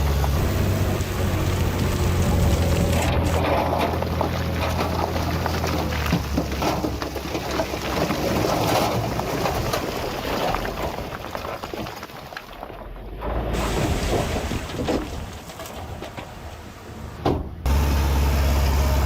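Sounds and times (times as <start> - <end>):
rough rumbling and crackling: 0.0 - 17.8.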